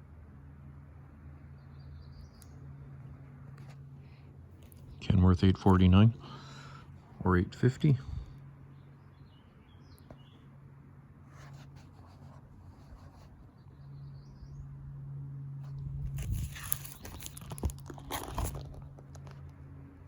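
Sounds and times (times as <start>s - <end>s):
steady low hum: 0.0s - 20.0s
faint bird chirp: 8.7s - 10.5s, 12.9s - 14.8s
page rustling: 16.1s - 19.4s.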